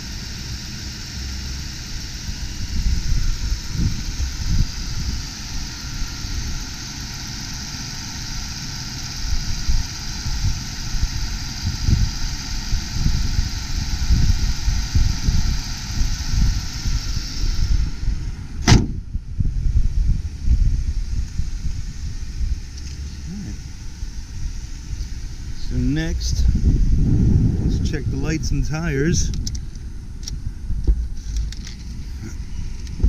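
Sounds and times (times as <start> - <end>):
car engine idling: 0.0 - 33.0
sharp bang: 18.6 - 19.0.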